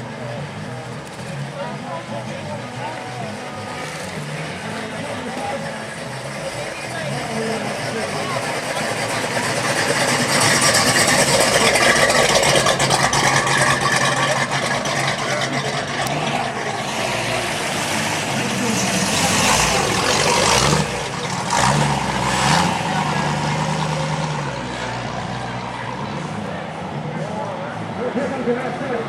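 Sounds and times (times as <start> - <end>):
car engine idling and revving: 0.0 - 29.0
crowd chatter: 0.0 - 29.0.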